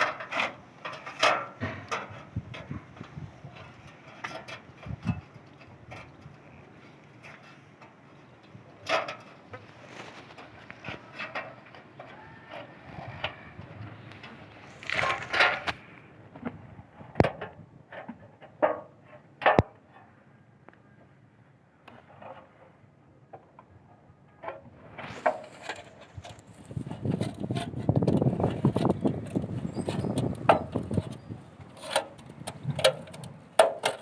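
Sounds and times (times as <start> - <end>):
rustling: 9.6 - 16.1, 24.8 - 34.0.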